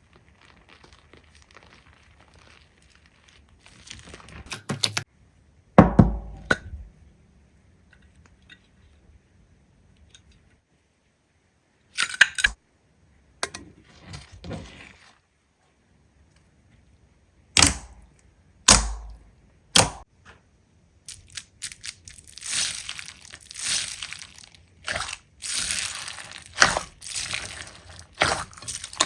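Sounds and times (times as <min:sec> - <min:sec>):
heavy thunk: 0:05.8 - 0:06.6.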